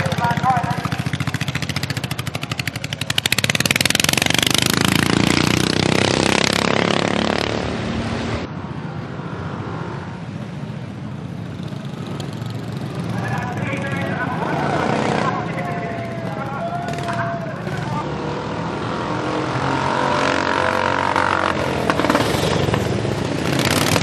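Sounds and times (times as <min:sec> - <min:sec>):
lawnmower engines at high revs: 0:00.0 - 0:08.0, 0:16.3 - 0:24.0.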